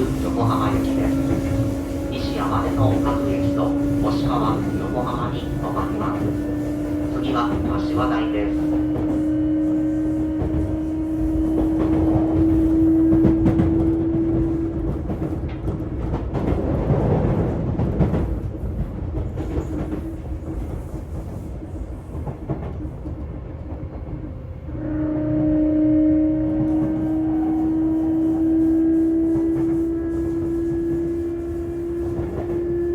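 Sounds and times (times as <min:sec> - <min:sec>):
rail clicks: 0:00.0 - 0:24.3
wheel and rail rumble: 0:00.0 - 0:24.7, 0:26.1 - 0:32.9.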